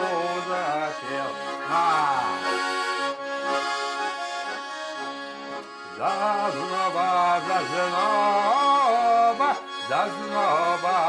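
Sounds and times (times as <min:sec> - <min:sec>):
person singing: 0:00.0 - 0:02.6, 0:06.0 - 0:11.0
accordion playing folk tune: 0:00.0 - 0:11.0.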